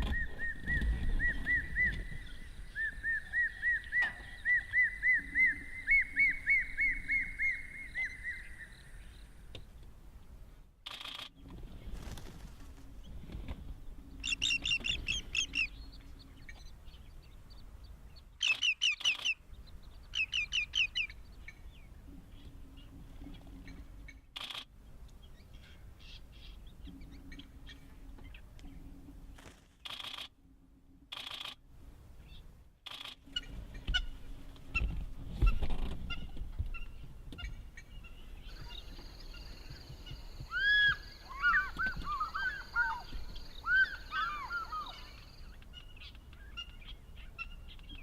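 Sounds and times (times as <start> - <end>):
high steady hiss: 38.4 - 45.7.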